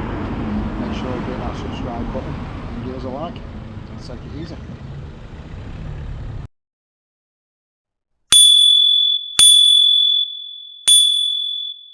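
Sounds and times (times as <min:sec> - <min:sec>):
bright bell-like dings: 0:08.3 - 0:11.9.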